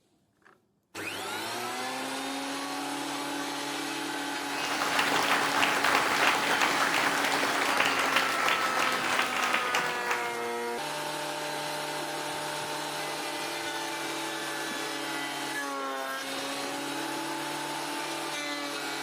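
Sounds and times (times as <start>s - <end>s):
power tool cutting wood: 1.0s - 4.4s.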